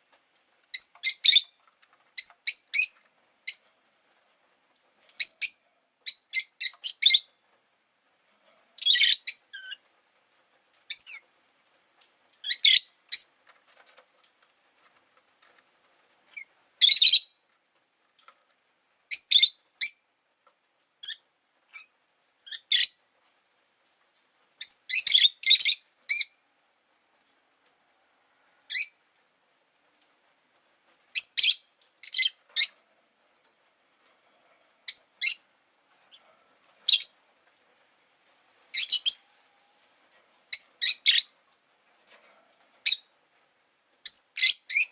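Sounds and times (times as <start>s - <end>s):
lovebirds chirping: 0.7s - 1.6s, 2.2s - 3.7s, 5.2s - 7.4s, 12.4s - 13.4s, 34.8s - 35.5s, 36.8s - 37.2s, 38.7s - 39.3s, 40.5s - 41.4s, 44.0s - 44.9s.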